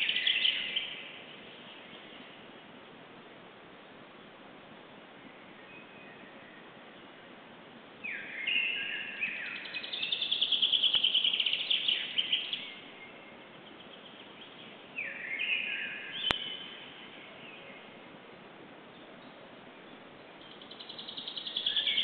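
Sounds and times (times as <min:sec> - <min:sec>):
songbird singing with trill: 0:00.0 - 0:02.4, 0:05.2 - 0:06.8, 0:08.0 - 0:18.0, 0:18.9 - 0:22.0.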